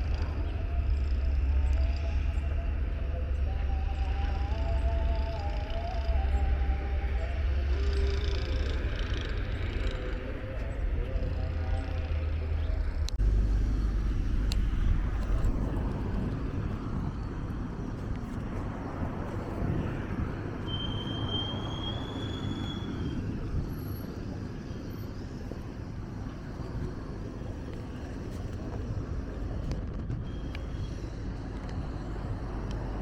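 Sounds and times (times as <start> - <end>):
outdoor rumble and hiss: 0.0 - 33.0
thin high whistle: 1.7 - 8.5, 20.6 - 23.4.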